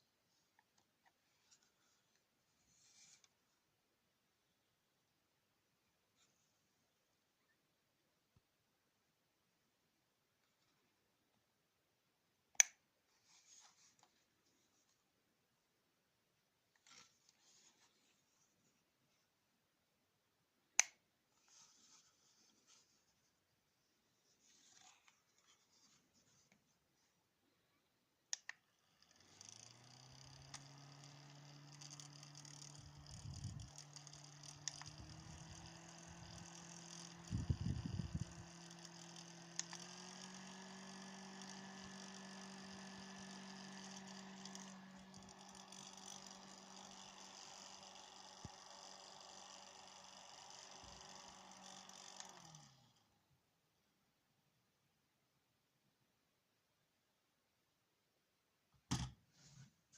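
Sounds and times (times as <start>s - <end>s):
small fan motor humming: 28.3s - 53.3s.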